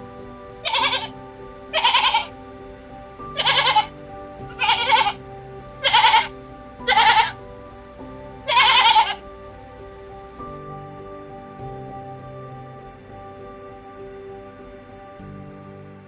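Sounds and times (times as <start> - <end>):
soft background music: 0.0 - 16.0
animal bleating: 1.8 - 2.3, 3.4 - 3.9, 4.6 - 5.2, 5.8 - 6.3, 6.9 - 7.3, 8.5 - 9.2.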